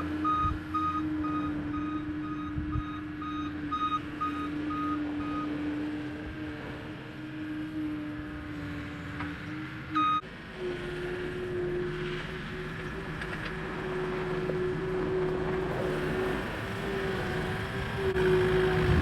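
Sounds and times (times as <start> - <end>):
skid steer engine running: 0.0 - 19.0
reverse alarm beeping: 0.1 - 5.6, 9.9 - 10.2.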